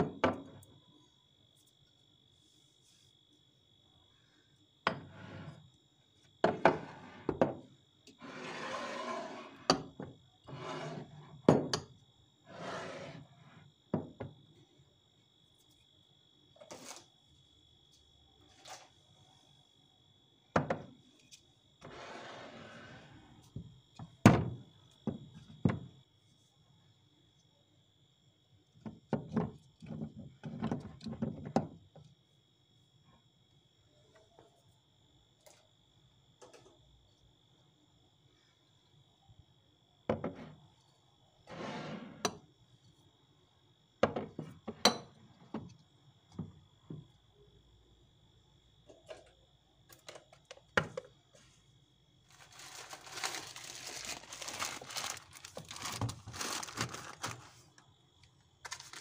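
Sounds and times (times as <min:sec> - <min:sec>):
rustling: 0:52.3 - 0:57.7.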